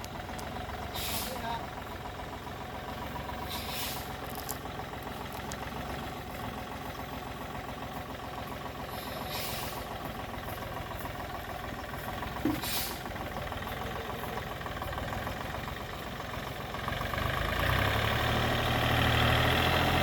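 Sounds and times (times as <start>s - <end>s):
heavy machine engine running: 0.0s - 20.0s
short hisses: 0.9s - 1.4s, 3.5s - 4.1s, 8.9s - 9.8s, 12.6s - 13.0s.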